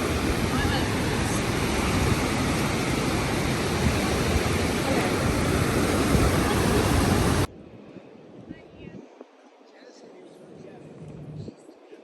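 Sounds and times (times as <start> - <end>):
ocean surf rushing: 0.0 - 7.5
wind on microphone: 0.0 - 9.7, 10.4 - 12.0.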